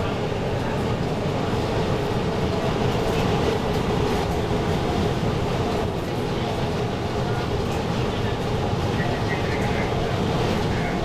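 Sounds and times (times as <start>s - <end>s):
metro train rumble and hum: 0.0s - 11.0s.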